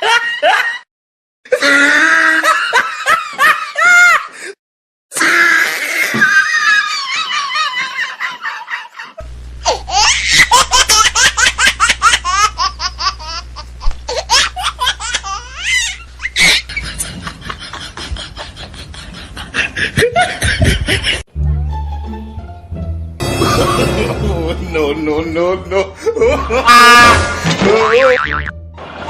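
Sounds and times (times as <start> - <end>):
high-pitched laughter: 5.2 - 13.4, 14.1 - 21.2
low steady hum: 9.2 - 21.0.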